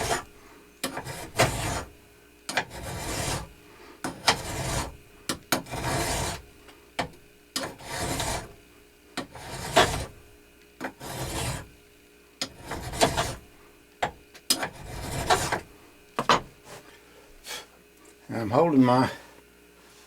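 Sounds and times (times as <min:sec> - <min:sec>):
hand file rasping on metal: 0:00.0 - 0:01.9, 0:02.5 - 0:06.4, 0:07.6 - 0:08.6, 0:09.2 - 0:10.1, 0:10.8 - 0:11.7, 0:12.4 - 0:13.4, 0:14.5 - 0:15.6.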